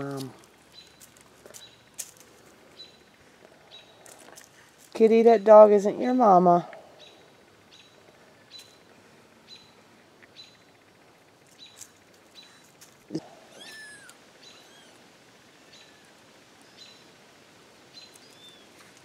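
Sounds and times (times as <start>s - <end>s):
small bird chirping: 0.0s - 4.5s, 6.9s - 17.2s, 17.9s - 18.9s.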